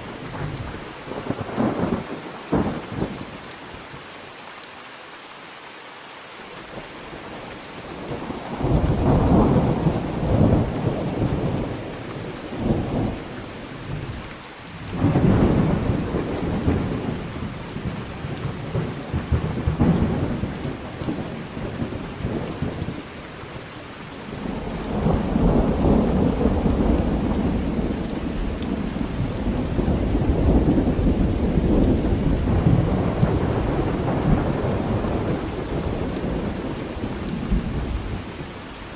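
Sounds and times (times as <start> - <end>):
steady rain: 0.0 - 38.9
rolling thunder: 8.1 - 13.3, 14.9 - 23.0, 24.3 - 38.5.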